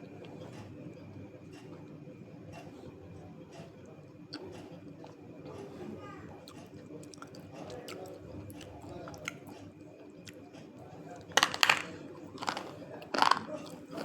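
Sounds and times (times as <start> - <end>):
person chewing crunchy clay: 11.4 - 14.0.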